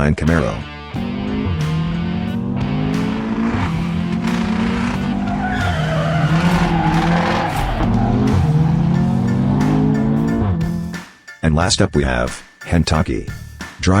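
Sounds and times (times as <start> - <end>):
race car engine revving: 0.9 - 11.0
tyres squealing: 3.0 - 10.7.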